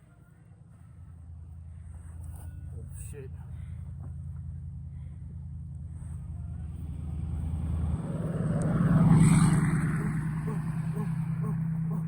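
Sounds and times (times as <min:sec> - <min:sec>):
large vehicle engine hum: 0:00.0 - 0:12.0
road noise rushing: 0:05.8 - 0:12.0.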